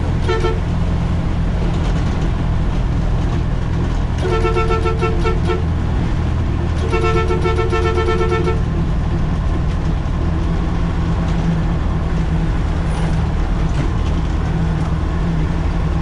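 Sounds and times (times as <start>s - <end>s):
diesel engine running: 0.0s - 16.0s
vehicle horn: 0.2s - 0.7s, 4.2s - 5.7s, 6.8s - 8.7s.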